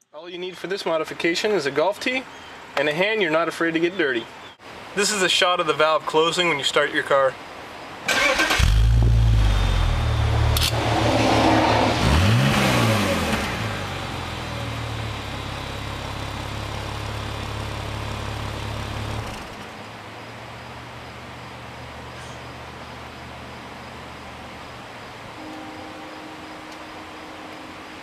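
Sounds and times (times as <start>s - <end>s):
car engine idling: 8.1s - 10.8s, 12.0s - 22.1s
engine revving: 8.1s - 19.6s.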